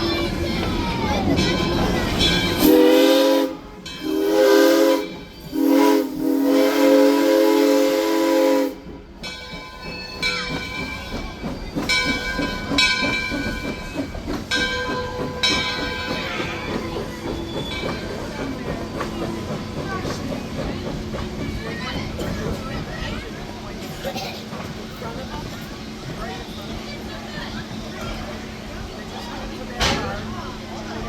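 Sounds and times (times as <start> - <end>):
steam locomotive chuffing: 0.0 - 31.0
steam locomotive whistle blasts: 2.6 - 8.9.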